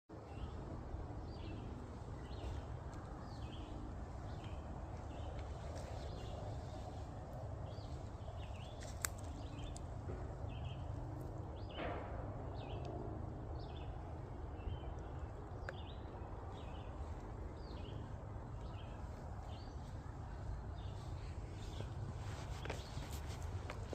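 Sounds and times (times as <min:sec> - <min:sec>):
steady low rumble: 0:00.1 - 0:23.9.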